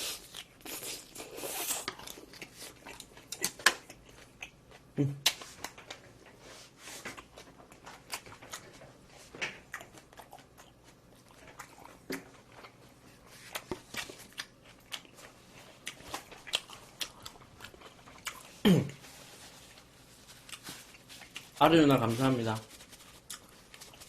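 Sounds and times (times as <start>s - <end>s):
chewing and biting food: 0.0s - 5.8s, 9.6s - 12.8s, 13.5s - 18.6s, 20.4s - 21.6s, 22.8s - 24.0s.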